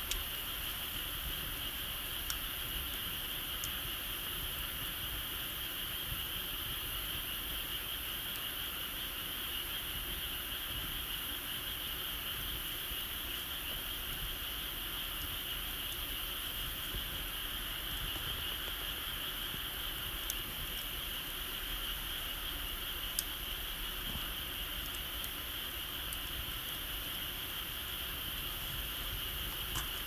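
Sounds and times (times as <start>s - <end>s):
faint ticks: 0.0s - 0.3s, 0.9s - 3.8s, 19.3s - 21.0s, 23.0s - 23.4s, 24.0s - 26.4s, 29.3s - 30.0s.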